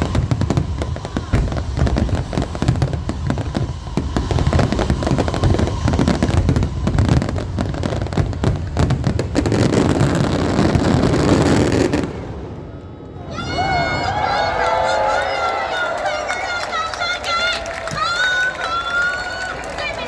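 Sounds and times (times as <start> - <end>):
fireworks crackling: 0.0 - 20.0
low fireworks booms: 0.0 - 20.0.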